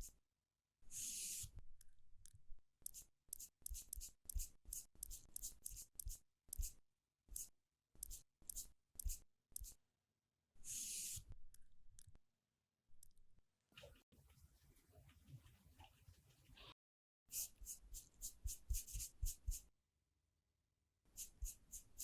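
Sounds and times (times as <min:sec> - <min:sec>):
scratchy applicator swipes and taps: 0:02.9 - 0:09.8.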